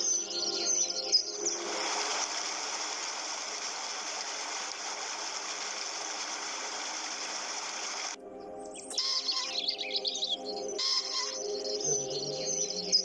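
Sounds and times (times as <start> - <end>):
flowing stream water: 0.0 - 8.2.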